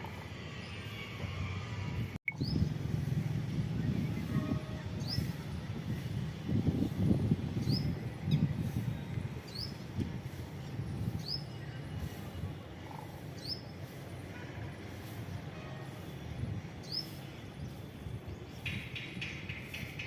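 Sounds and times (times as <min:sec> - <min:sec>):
rapid rattling bird calls: 0:18.6 - 0:20.0.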